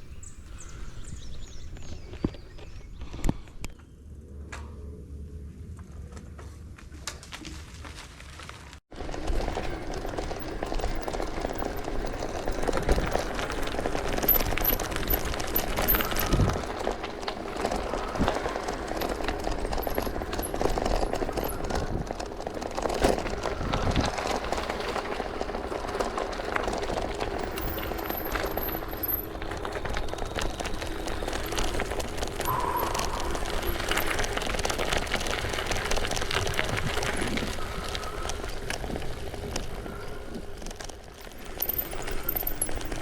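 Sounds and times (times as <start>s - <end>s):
bicycle tyres on rough ground: 0.0s - 43.0s
bike rattling over bumps: 0.0s - 43.0s.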